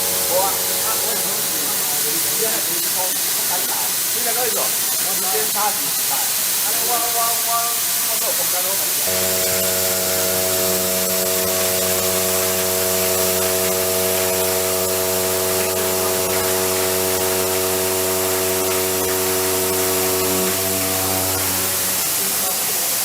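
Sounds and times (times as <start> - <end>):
milling machine cutting: 0.0 - 4.0, 9.0 - 23.0.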